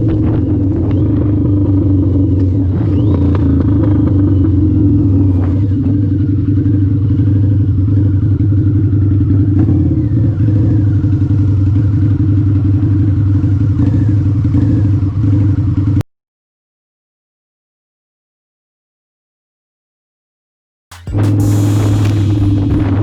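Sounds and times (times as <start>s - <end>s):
motorcycle engine running: 0.0s - 16.0s, 20.9s - 23.0s.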